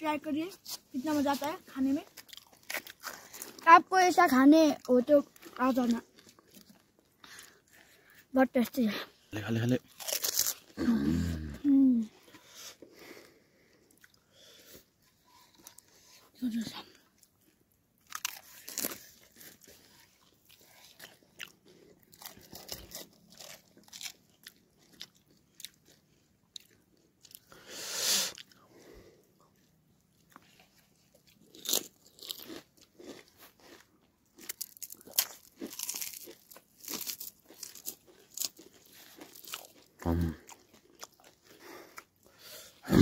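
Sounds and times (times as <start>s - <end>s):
crunching crisp shells: 2.1s - 3.6s, 9.7s - 10.8s, 18.0s - 27.5s, 30.3s - 42.2s.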